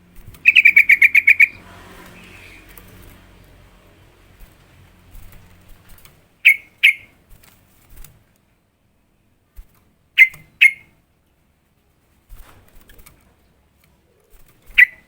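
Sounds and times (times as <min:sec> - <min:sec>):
bird calling sharp notes: 0:00.4 - 0:02.8, 0:06.4 - 0:07.2, 0:10.2 - 0:10.9, 0:14.7 - 0:15.0.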